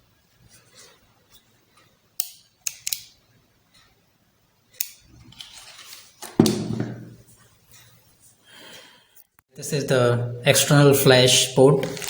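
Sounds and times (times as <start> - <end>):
heavy knock: 6.4 - 7.2.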